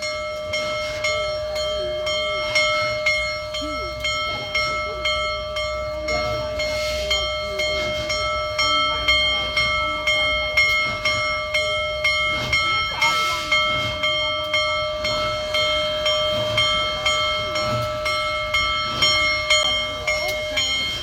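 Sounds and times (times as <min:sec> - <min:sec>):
locomotive bell ringing: 0:00.0 - 0:21.0
steam hiss: 0:06.0 - 0:21.0.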